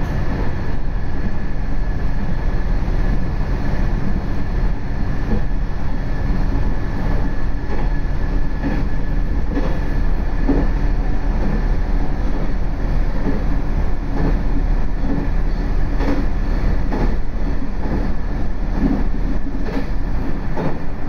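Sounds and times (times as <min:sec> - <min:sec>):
railcar engine and wheels rumbling: 0:00.0 - 0:21.0.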